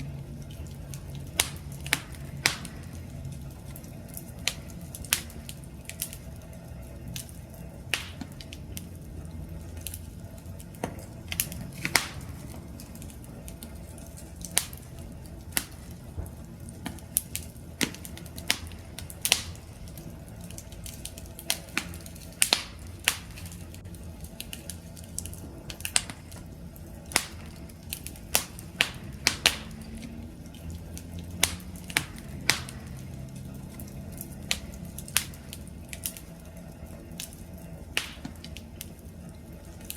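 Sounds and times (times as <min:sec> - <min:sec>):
campfire pops and snaps: 0:00.0 - 0:39.9
low rumble of flames: 0:00.0 - 0:39.9.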